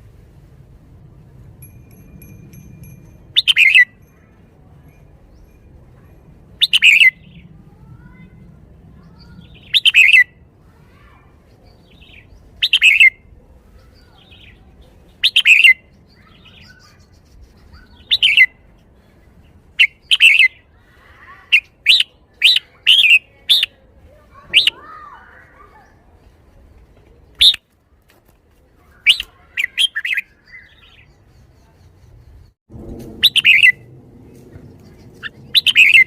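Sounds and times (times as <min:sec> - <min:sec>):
bird singing short phrases: 0:28.9 - 0:32.2, 0:34.8 - 0:36.0.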